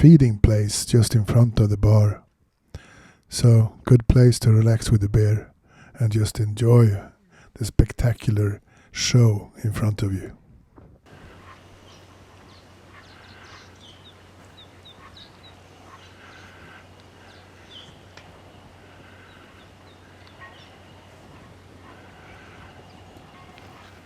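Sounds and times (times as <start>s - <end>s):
birds chirping and calling: 11.1s - 24.0s
steady low hum: 11.1s - 24.0s.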